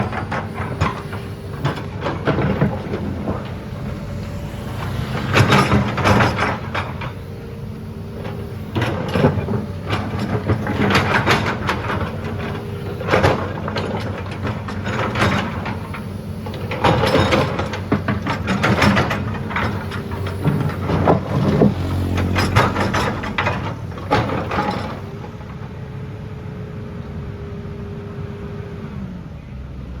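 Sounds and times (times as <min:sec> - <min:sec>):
bucket scraping and clattering: 0:00.0 - 0:07.2
hydraulic whine: 0:00.0 - 0:25.4
diesel engine running: 0:00.0 - 0:29.8.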